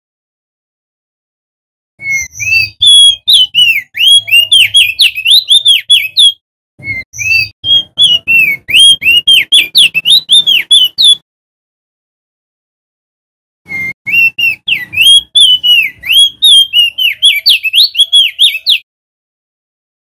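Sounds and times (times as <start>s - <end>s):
bird whistled chirps: 2.0s - 11.2s, 13.7s - 18.8s.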